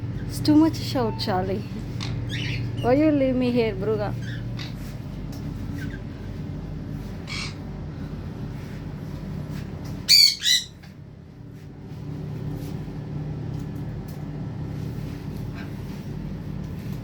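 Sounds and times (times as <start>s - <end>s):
bird squawking harshly: 10.1s - 10.8s.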